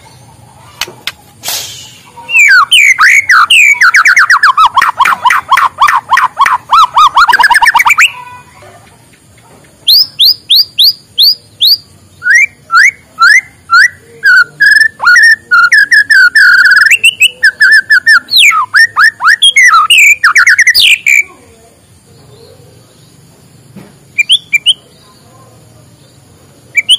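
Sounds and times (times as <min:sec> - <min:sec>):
bird whistling and trilling: 0:01.7 - 0:08.2, 0:09.9 - 0:21.2, 0:24.2 - 0:24.8.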